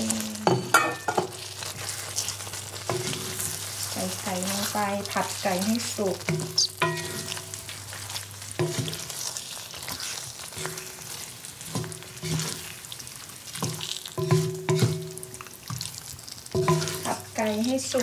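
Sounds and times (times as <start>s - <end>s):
chicken sizzling in a wok: 0.0s - 18.0s
wooden spatula knocking on pan: 8.6s - 9.0s, 13.6s - 15.9s, 16.6s - 17.2s.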